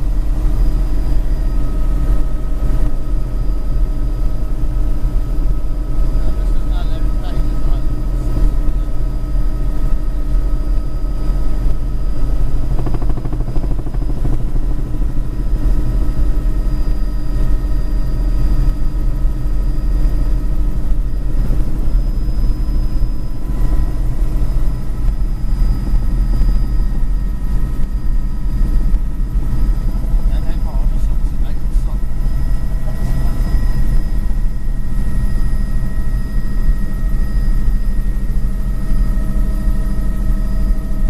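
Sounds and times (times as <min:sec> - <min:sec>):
helicopter rotor and engine noise: 0:00.0 - 0:41.0.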